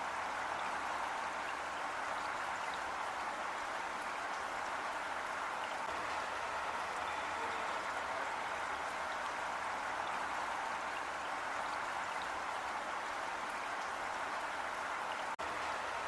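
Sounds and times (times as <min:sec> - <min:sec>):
heavy rain falling: 0:04.9 - 0:12.1, 0:15.4 - 0:16.0.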